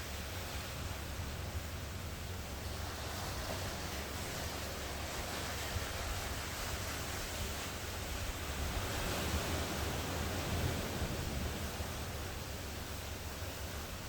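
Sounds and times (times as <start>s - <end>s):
ocean surf washing ashore: 0.0s - 14.0s.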